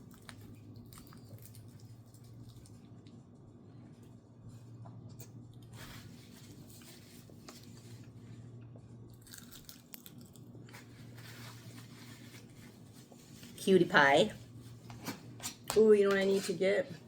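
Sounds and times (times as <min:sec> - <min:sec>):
person chewing and biting: 0:00.0 - 0:02.8, 0:09.1 - 0:10.9
steady low hum: 0:00.0 - 0:17.0.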